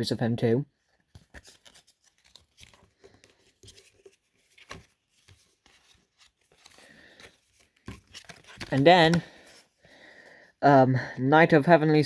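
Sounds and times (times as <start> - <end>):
rustling of cards and packaging: 0.8 - 10.1.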